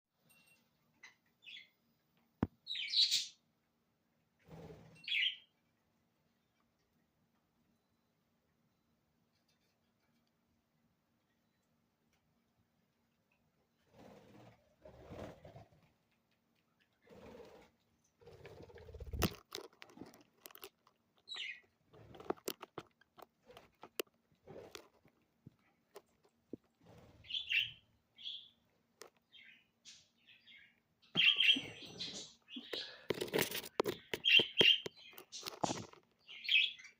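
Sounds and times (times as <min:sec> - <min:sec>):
bird chirp: 0:00.2 - 0:03.5, 0:04.6 - 0:05.6, 0:16.6 - 0:21.8, 0:26.8 - 0:36.9
birds pecking and crunching seeds: 0:00.3 - 0:36.9
budgerigars chirping: 0:02.7 - 0:03.4, 0:29.4 - 0:33.0.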